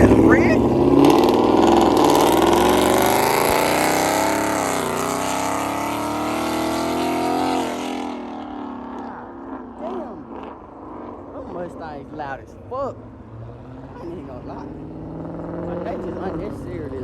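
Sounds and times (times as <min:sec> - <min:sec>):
loud car exhaust driving off: 0:00.0 - 0:12.0.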